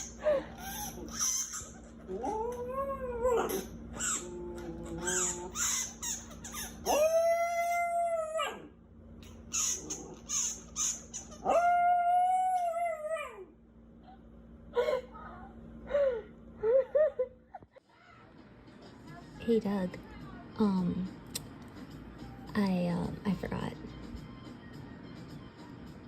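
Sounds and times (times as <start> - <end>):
dog whimpering yelps: 0.5 - 8.7, 9.5 - 13.5
dog howling: 2.1 - 6.0, 6.7 - 8.8, 11.3 - 13.6.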